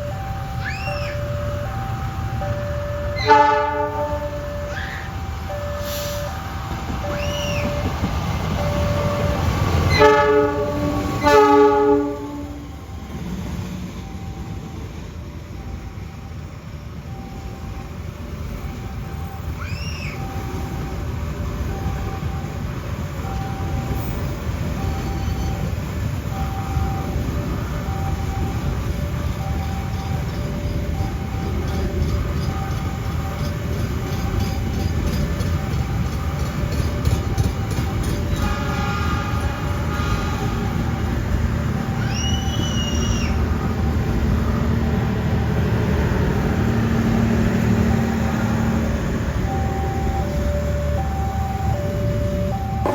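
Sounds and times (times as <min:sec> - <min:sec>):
crossing warning signal tone: 0:00.0 - 0:52.9
train rumbling past: 0:00.0 - 0:52.9
rising and falling whistle: 0:00.1 - 0:01.8, 0:04.5 - 0:08.0, 0:19.5 - 0:20.5, 0:41.8 - 0:43.7
train horn blast: 0:03.2 - 0:04.8, 0:09.7 - 0:12.7, 0:38.3 - 0:41.1.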